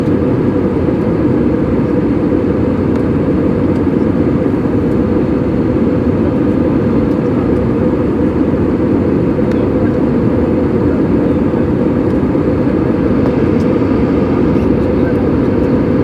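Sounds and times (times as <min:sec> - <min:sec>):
airliner cabin engine roar: 0:00.0 - 0:16.0.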